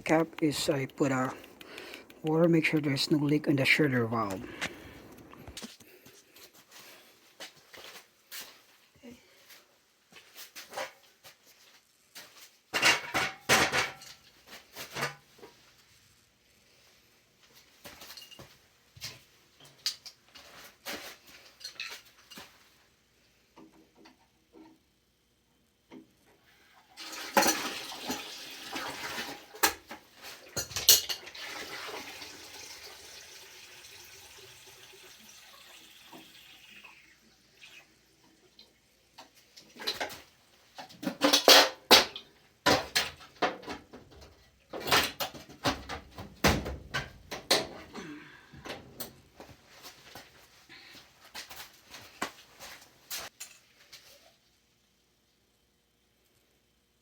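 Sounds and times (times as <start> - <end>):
hissing running water: 31.2 - 39.8.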